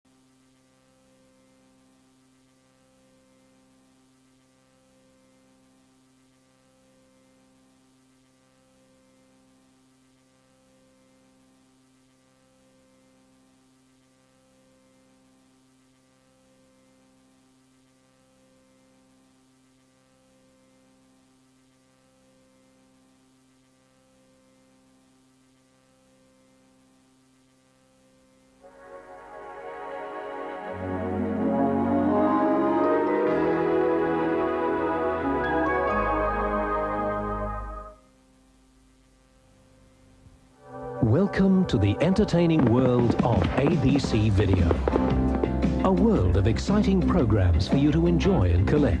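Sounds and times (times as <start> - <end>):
faint electrical hum: 37.6 - 42.5.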